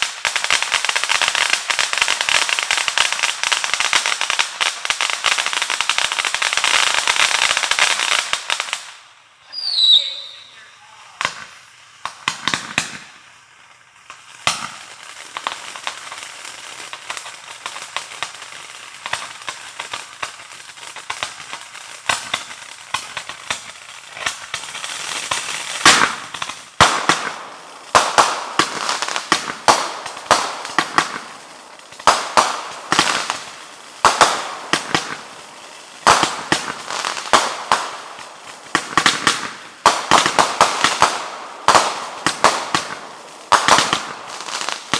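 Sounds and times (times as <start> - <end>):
fireworks cracking and banging: 0.0 - 44.9.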